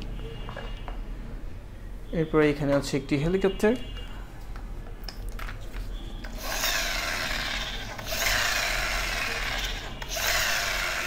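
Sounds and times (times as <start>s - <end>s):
toy helicopter whirring: 6.4s - 11.0s.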